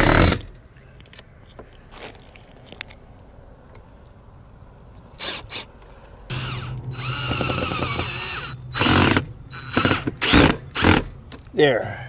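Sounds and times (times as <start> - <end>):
power drill whining: 5.2 - 5.7, 6.3 - 11.4.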